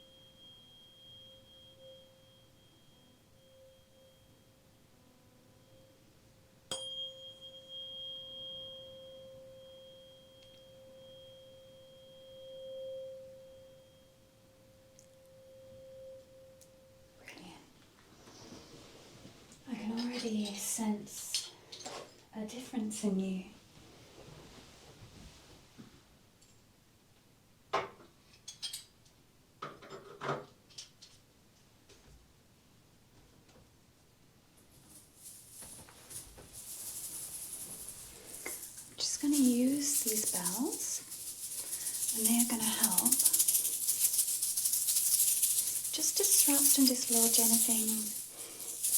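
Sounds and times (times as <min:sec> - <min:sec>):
tuning fork ringing: 0:00.0 - 0:17.4
tuning fork struck click: 0:06.7 - 0:14.2
metal implements clinking: 0:36.6 - 0:48.9.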